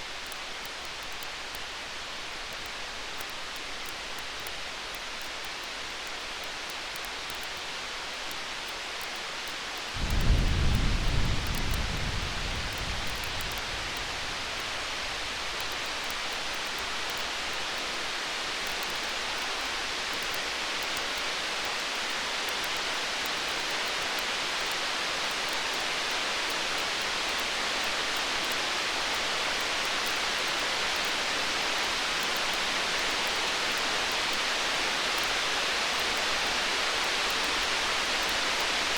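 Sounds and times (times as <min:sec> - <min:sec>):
faint campfire crackles: 0:00.0 - 0:38.9
rain-like hiss: 0:00.0 - 0:38.9
distant thunder roll: 0:10.0 - 0:15.7.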